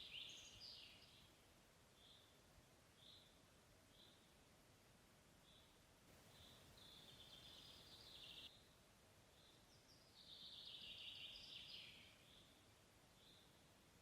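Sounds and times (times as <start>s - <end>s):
faint songbird song: 0.0s - 14.0s.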